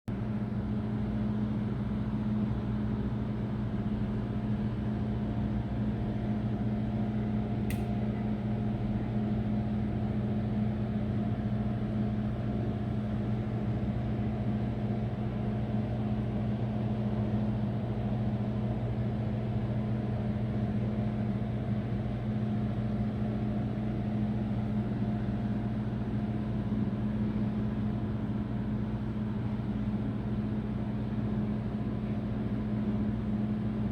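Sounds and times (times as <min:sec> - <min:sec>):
low mechanical hum: 0:00.1 - 0:33.9
faint click: 0:07.7 - 0:07.9.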